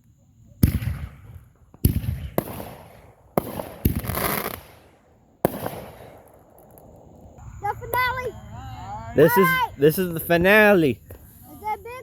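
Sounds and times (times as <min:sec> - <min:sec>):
fireworks crackling: 0:00.0 - 0:08.4, 0:09.2 - 0:12.0
fireworks bangs with echo: 0:00.6 - 0:07.2.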